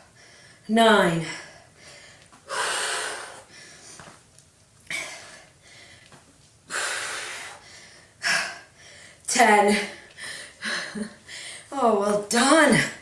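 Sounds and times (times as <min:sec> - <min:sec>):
woman exhaling forcefully: 0:02.5 - 0:03.5.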